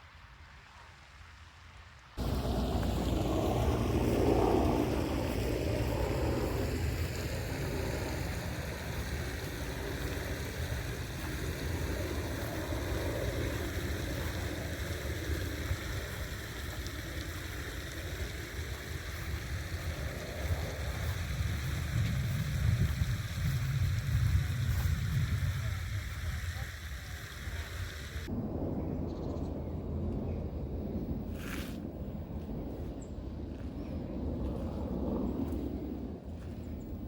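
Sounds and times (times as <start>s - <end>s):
hiss: 2.2s - 28.3s
heavy low rumble: 2.2s - 37.0s.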